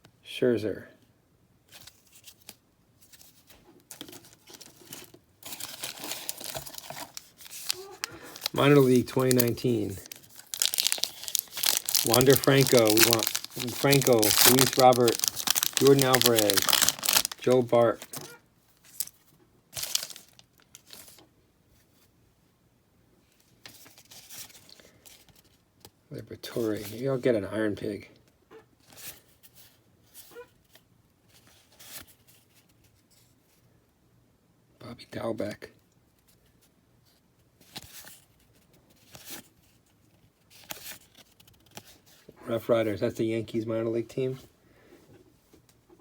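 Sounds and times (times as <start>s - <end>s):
cards rustling: 1.7s - 19.2s, 19.8s - 21.2s
wrapper tearing and crinkling: 3.9s - 18.3s, 18.9s - 19.2s, 19.8s - 21.2s.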